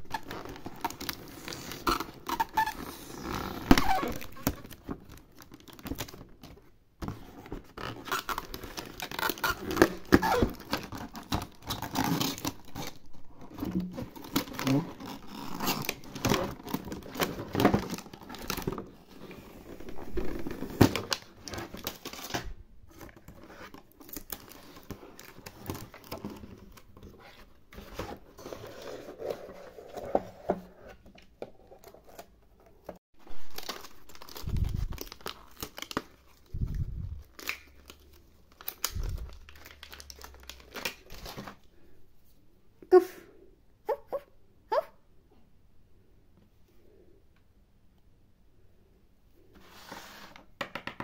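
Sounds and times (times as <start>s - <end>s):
plastic packaging crinkling: 33.2s - 41.7s.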